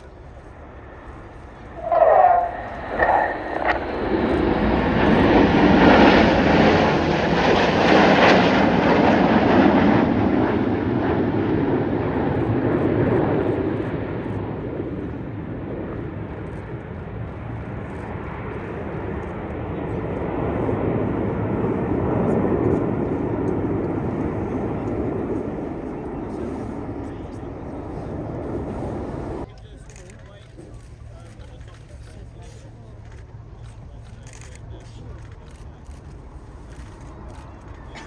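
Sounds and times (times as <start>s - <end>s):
jets flying past: 0.0s - 29.5s.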